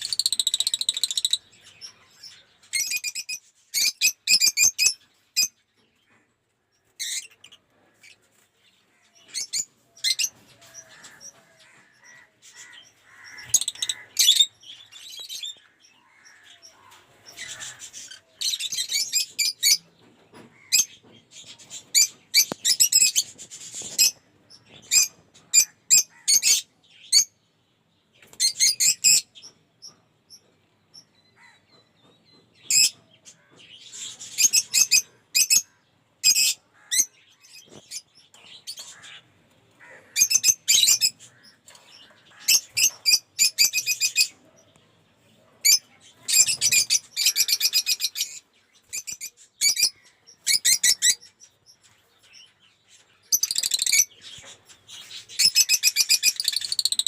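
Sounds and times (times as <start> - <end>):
lovebirds chirping: 0.0 - 57.0.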